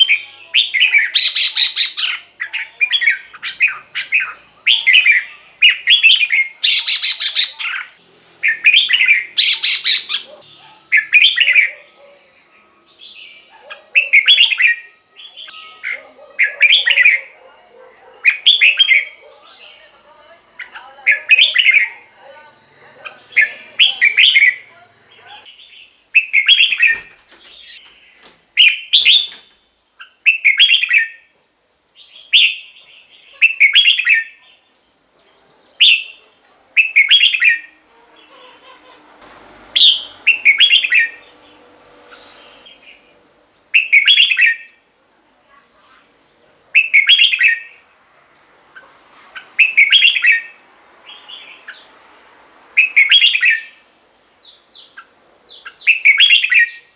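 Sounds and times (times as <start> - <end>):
bird singing whistled phrases: 0.0 - 11.8, 13.1 - 17.3, 22.6 - 24.7, 25.5 - 27.1, 28.6 - 29.4, 30.0 - 31.3, 32.0 - 32.8, 33.4 - 34.4, 36.8 - 37.7, 39.8 - 41.2, 43.7 - 44.8, 46.8 - 47.8, 49.6 - 51.8, 52.8 - 53.8, 54.4 - 56.9.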